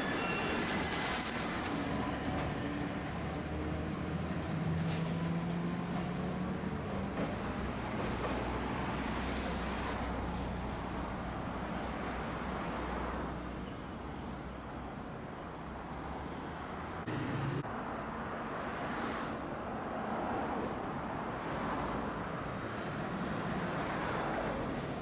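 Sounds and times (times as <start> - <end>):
streetcar wheels rumbling: 0.0 - 17.7.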